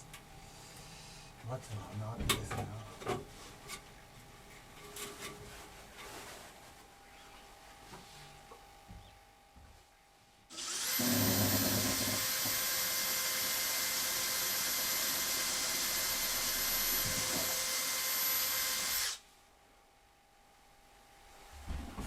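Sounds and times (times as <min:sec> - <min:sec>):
electric motor whining: 0:10.6 - 0:13.4.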